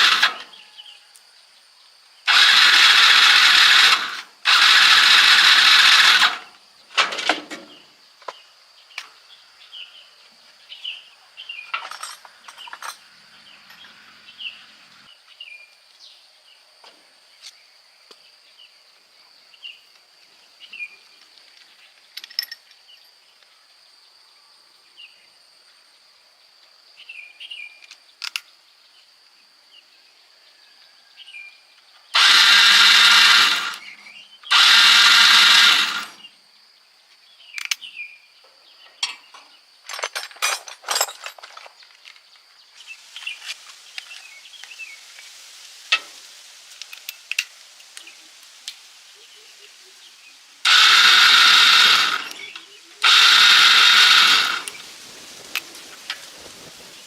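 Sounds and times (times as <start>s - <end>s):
handheld power tool running: 0.0s - 0.4s, 2.3s - 6.5s, 32.2s - 36.2s, 50.7s - 54.8s
high insect drone: 0.0s - 39.9s, 42.0s - 57.0s
bird chirps: 7.6s - 23.8s, 27.0s - 29.1s, 33.8s - 34.5s, 37.0s - 39.7s, 47.0s - 50.6s, 52.2s - 53.0s.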